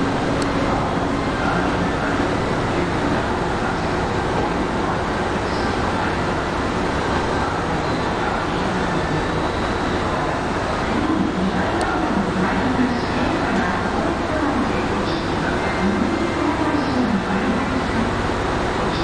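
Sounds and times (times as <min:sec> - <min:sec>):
electric trains running slowly: 0:00.0 - 0:19.0.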